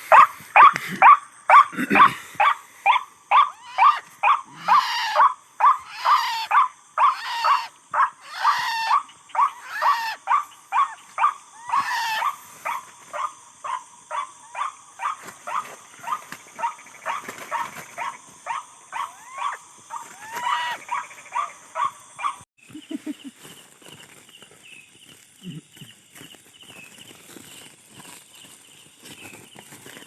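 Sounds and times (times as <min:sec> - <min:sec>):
waterhen croaking calls: 0:03.3 - 0:12.4, 0:19.0 - 0:21.9.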